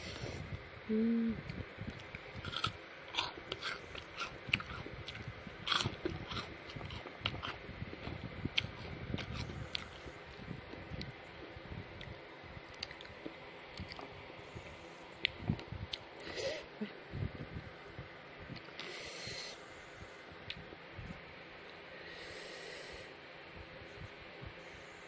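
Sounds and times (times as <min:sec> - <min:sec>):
steady hummed tone: 0:00.0 - 0:25.0
chewing crunchy food: 0:01.9 - 0:14.2.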